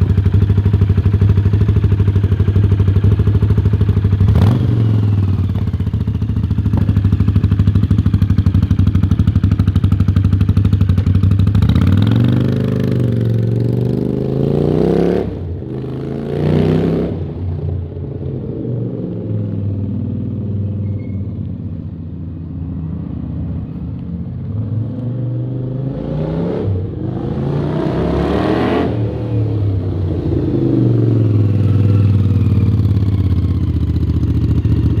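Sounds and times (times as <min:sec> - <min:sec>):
motorcycle engine revving: 0:00.0 - 0:17.4, 0:25.7 - 0:35.0.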